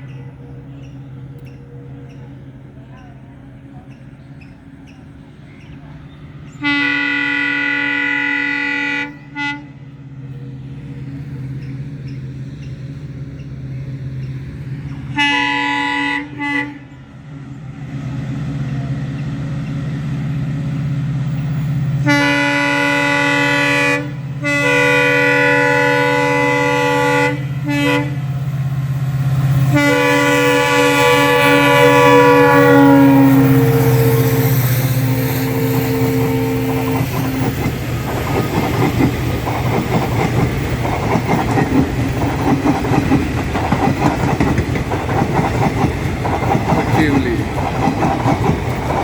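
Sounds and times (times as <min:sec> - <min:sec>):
train engine rumble: 0:00.0 - 0:49.0
locomotive horn blasts: 0:06.6 - 0:10.6, 0:15.1 - 0:17.0, 0:22.0 - 0:28.4, 0:29.5 - 0:37.8.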